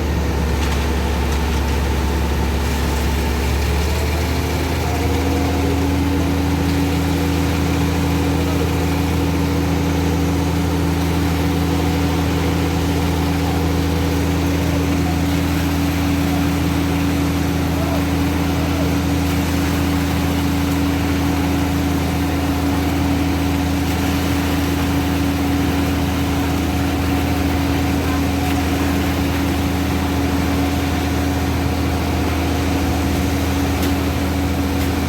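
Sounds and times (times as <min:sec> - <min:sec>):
diesel truck engine idling: 0:00.0 - 0:35.0.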